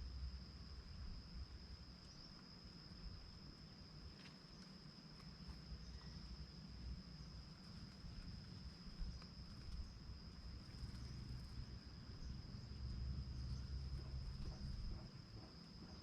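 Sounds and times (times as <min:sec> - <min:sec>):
faint low rumble: 0:00.0 - 0:16.0
high insect trill: 0:00.0 - 0:16.0
faint ticks: 0:07.6 - 0:12.4.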